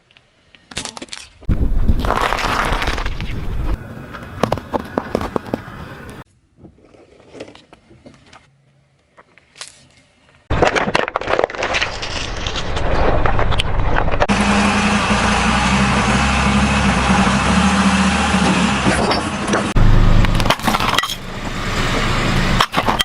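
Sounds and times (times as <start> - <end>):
tyres crunching objects: 0.7 - 6.2, 10.5 - 14.3, 19.8 - 23.0
car running with low hum: 13.5 - 23.0.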